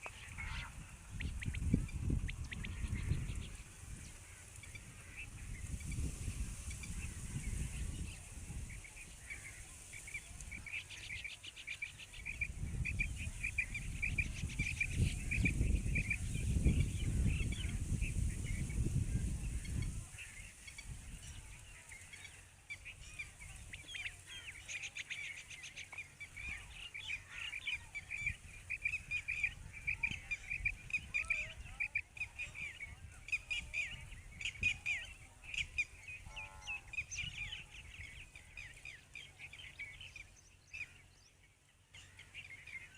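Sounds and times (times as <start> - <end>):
quail calling: 0.0 - 8.0.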